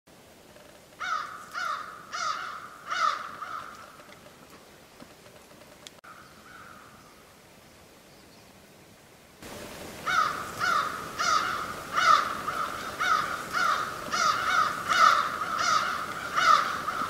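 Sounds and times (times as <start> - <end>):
bird cawing harshly: 1.0 - 4.0, 6.1 - 6.9, 10.0 - 17.0.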